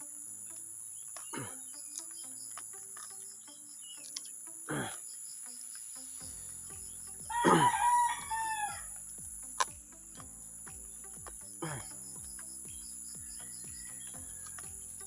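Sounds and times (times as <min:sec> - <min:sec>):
crickets buzzing: 0:00.0 - 0:15.0
rooster crowing: 0:07.3 - 0:09.0, 0:13.3 - 0:14.7.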